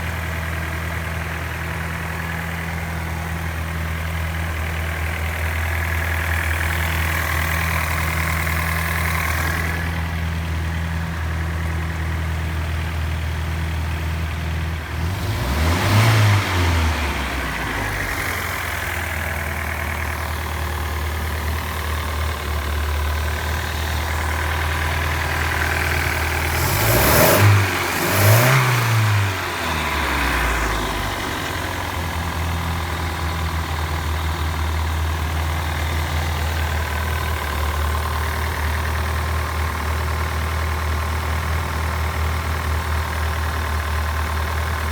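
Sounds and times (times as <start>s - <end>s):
boat engine idling: 17.4s - 26.8s, 29.4s - 44.9s.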